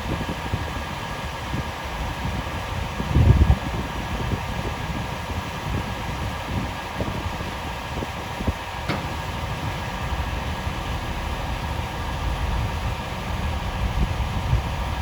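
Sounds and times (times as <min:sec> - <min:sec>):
snow-removal machinery running: 0:00.0 - 0:15.0
wind buffeting microphone: 0:00.0 - 0:15.0
sharp click: 0:08.9 - 0:09.2.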